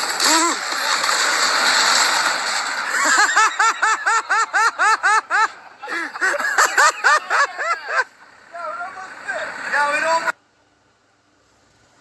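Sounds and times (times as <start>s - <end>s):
person laughing hard: 2.9s - 8.1s.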